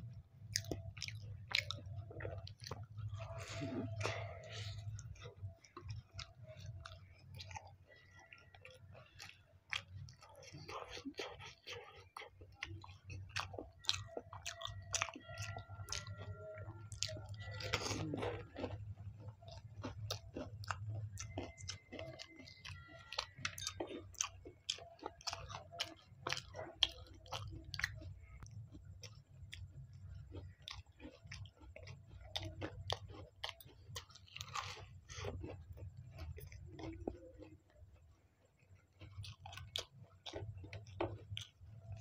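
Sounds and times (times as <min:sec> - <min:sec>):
crunchy chewing: 0:00.0 - 0:42.0
low steady hum: 0:00.0 - 0:42.0.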